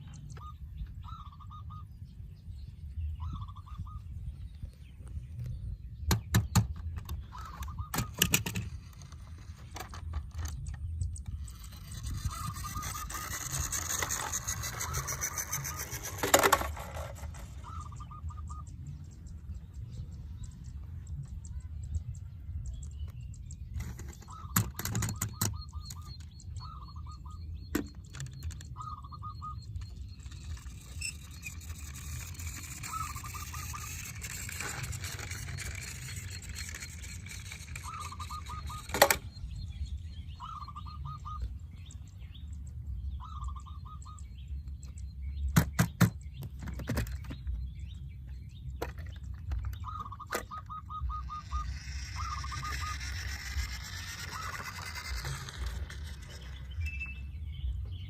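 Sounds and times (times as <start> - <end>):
toy vehicle scraping: 6.2 - 18.5, 23.6 - 26.9, 27.8 - 39.4, 48.8 - 57.4.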